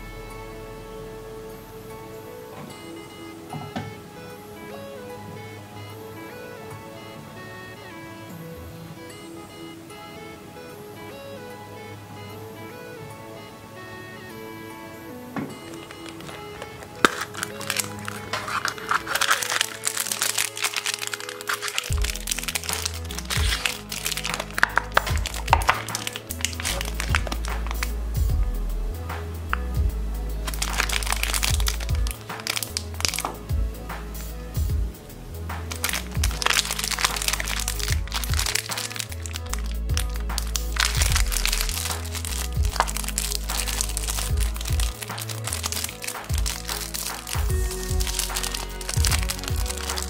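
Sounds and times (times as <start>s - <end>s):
background music: 0.0s - 50.0s
plastic box clicks and crackles: 15.5s - 27.9s, 30.5s - 33.4s, 35.7s - 50.0s
plastic wrapper crinkling: 15.6s - 27.9s, 30.4s - 33.4s, 35.7s - 50.0s.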